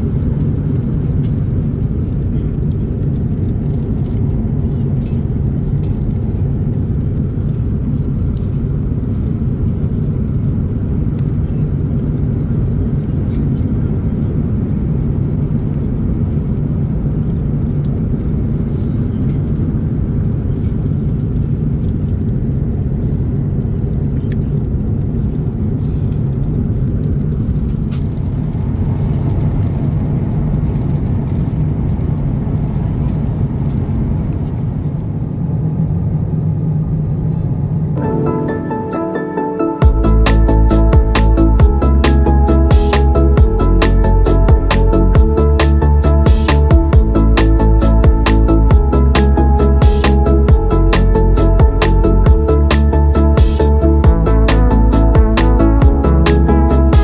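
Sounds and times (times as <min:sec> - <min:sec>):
aircraft cabin drone: 0:00.0 - 0:57.0.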